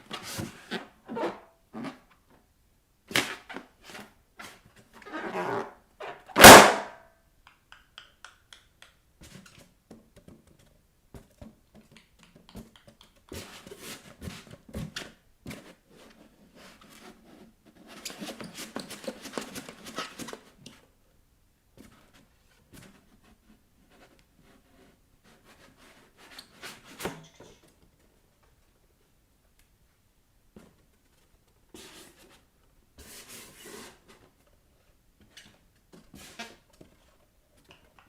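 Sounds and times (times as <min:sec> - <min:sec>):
balloon squeaking under feet: 0:05.0 - 0:06.8
balloon popping: 0:06.4 - 0:06.9.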